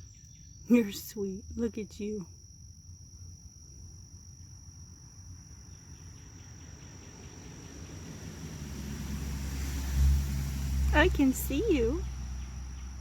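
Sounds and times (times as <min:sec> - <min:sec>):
insects trilling: 0:00.0 - 0:13.0
low rumble: 0:07.2 - 0:13.0.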